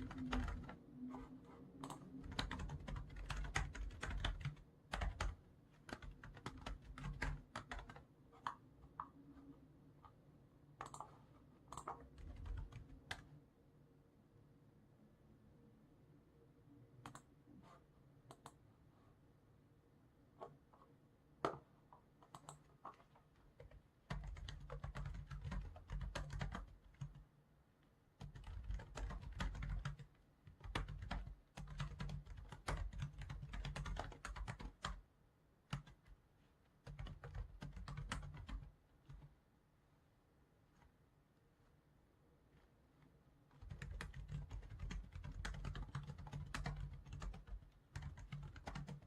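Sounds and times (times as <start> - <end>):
computer keyboard typing: 0.0 - 9.2, 10.8 - 13.3, 22.2 - 27.2, 28.2 - 35.0, 35.7 - 36.2, 36.8 - 39.3, 43.6 - 49.0.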